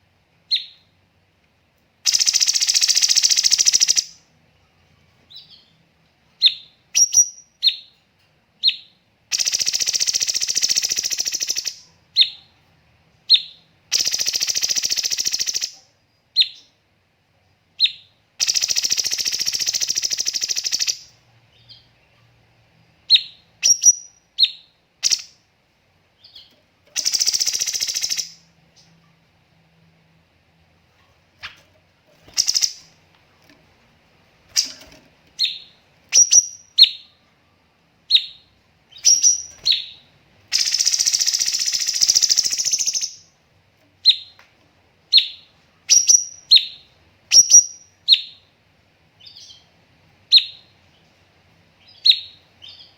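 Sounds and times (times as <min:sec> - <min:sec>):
bird chirps: 0:00.5 - 0:00.9, 0:02.1 - 0:04.2, 0:06.4 - 0:08.0, 0:08.6 - 0:12.5, 0:13.3 - 0:16.8, 0:17.8 - 0:22.2, 0:23.1 - 0:25.4, 0:26.2 - 0:29.0, 0:32.2 - 0:33.0, 0:34.5 - 0:37.3, 0:38.1 - 0:43.4, 0:44.0 - 0:44.4, 0:45.1 - 0:48.5, 0:50.3 - 0:51.1, 0:51.8 - 0:52.9
bird rattling trills: 0:31.4 - 0:32.9, 0:34.5 - 0:36.7.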